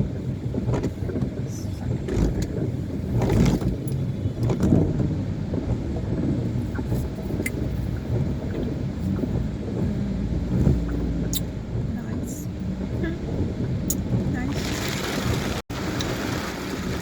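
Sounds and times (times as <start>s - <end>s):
engine and traffic rumble: 0.0s - 17.0s.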